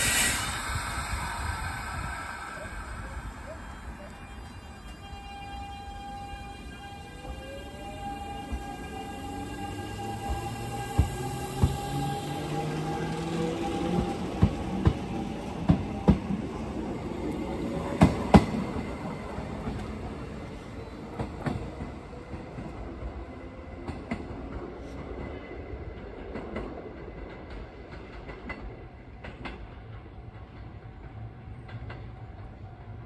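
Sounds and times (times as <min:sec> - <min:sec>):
train running rumble: 0:00.0 - 0:23.1.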